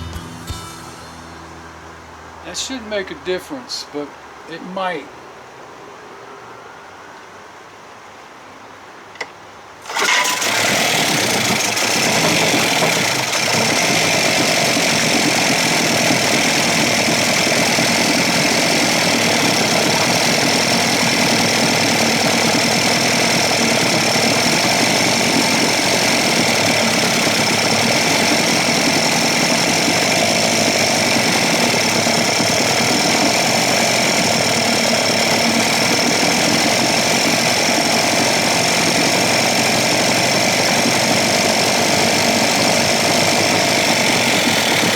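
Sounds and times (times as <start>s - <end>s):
outboard motor running: 9.8s - 44.9s.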